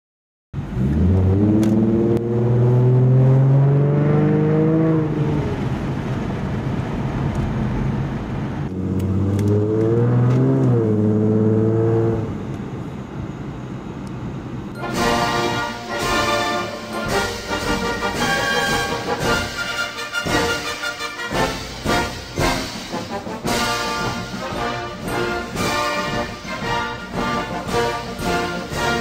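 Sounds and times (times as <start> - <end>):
car engine accelerating: 0.6 - 19.4.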